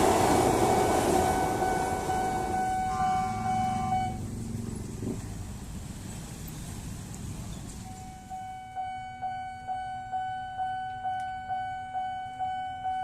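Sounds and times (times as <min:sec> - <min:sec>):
level-crossing warning bell: 0:00.0 - 0:04.2, 0:07.8 - 0:13.0
traffic noise: 0:00.0 - 0:13.0.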